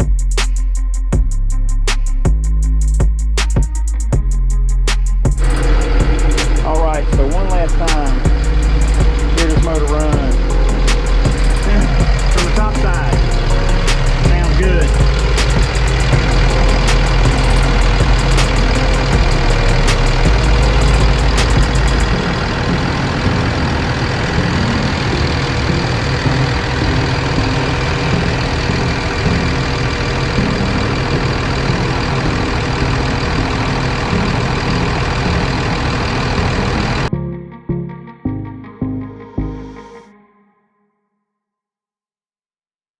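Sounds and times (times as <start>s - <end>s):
diesel engine idling: 5.4s - 37.1s.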